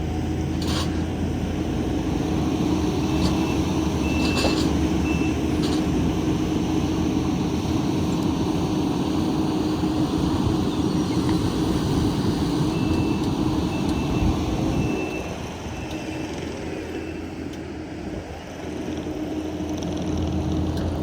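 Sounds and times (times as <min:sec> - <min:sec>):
heavy equipment engine running: 0:00.0 - 0:21.0
faint high beep: 0:12.7 - 0:16.3.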